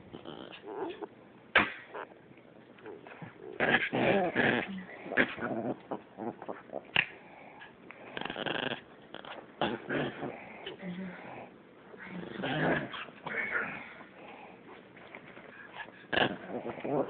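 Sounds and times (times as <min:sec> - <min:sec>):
dogs fighting: 0:02.8 - 0:10.8.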